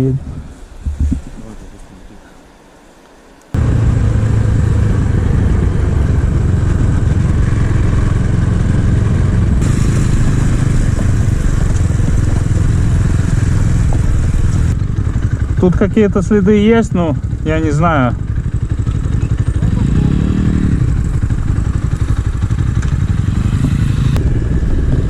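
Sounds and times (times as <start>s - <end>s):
wind and road noise: 0.0s - 25.0s
motorcycle engine running: 3.6s - 25.0s.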